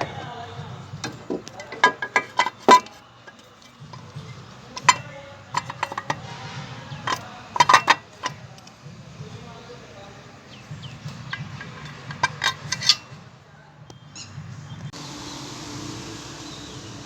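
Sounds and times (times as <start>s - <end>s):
metal tools clinking on steel: 0.0s - 13.3s.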